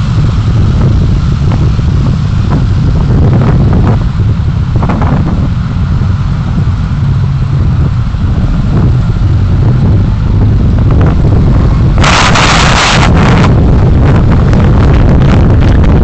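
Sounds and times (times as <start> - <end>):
road and wind rumble: 0.0 - 16.0
loud hiss: 7.4 - 14.9.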